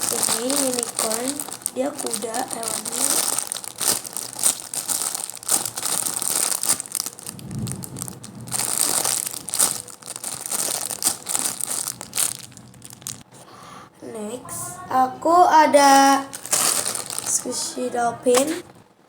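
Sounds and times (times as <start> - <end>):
squishy toy crinkling: 0.0 - 13.3, 16.3 - 17.7.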